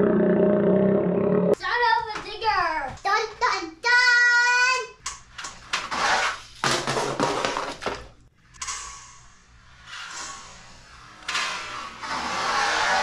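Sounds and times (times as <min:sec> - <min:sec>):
child shouting: 0:03.4 - 0:05.0.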